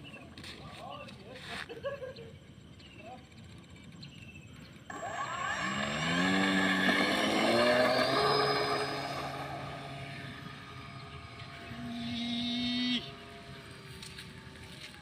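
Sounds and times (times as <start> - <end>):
model plane motor revving: 4.9 - 15.0.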